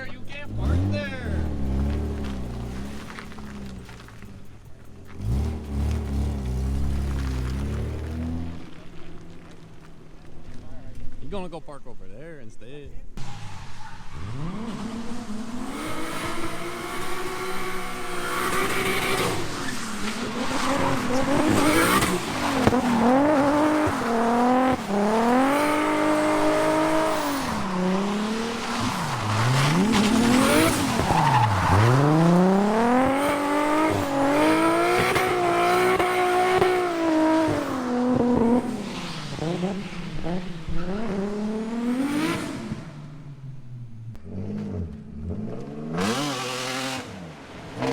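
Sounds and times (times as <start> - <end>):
tyres squealing: 0.0 - 11.6, 13.1 - 37.8
car engine revving: 0.0 - 47.9.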